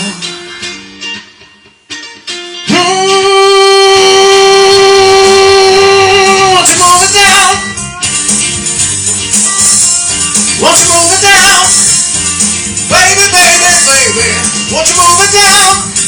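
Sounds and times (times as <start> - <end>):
acoustic guitar plucking: 0.0 - 16.0
person singing long note: 2.7 - 7.7.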